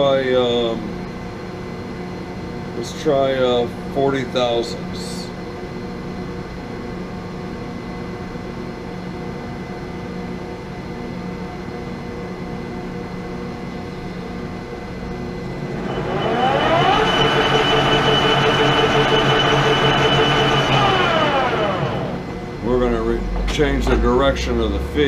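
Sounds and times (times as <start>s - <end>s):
lathe tool cutting steel whine: 15.5s - 22.8s
lathe running: 15.5s - 24.8s.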